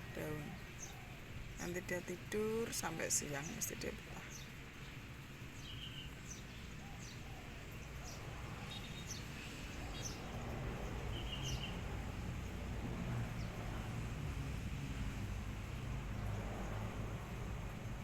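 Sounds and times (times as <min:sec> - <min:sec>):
low outdoor rumble: 0:00.0 - 0:18.0
small birds chirping: 0:02.8 - 0:12.6.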